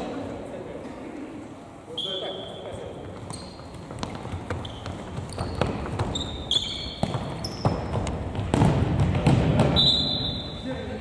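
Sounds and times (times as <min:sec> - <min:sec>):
sneaker squeaks: 0:01.9 - 0:10.8
ball thumping on court: 0:06.9 - 0:10.1.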